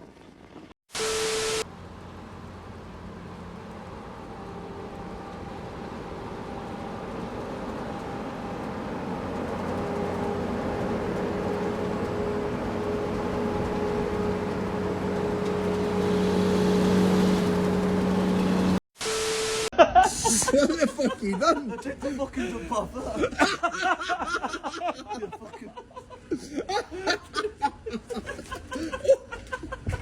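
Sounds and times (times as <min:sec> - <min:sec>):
engine humming: 0:00.2 - 0:19.7.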